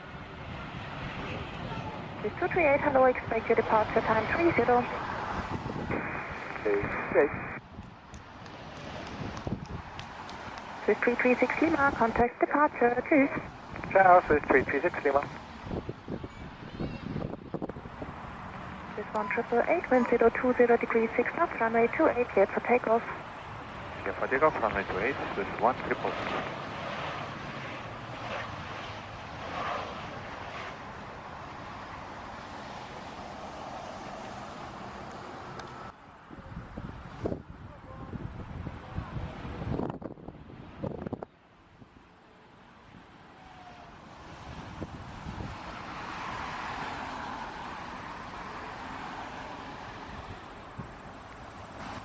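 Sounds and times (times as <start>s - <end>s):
distant jet airliner engines: 0.0s - 52.0s
wind on microphone: 3.8s - 10.8s, 13.2s - 18.4s, 36.3s - 41.9s, 44.2s - 45.8s
jet airliner taking off: 10.8s - 35.9s.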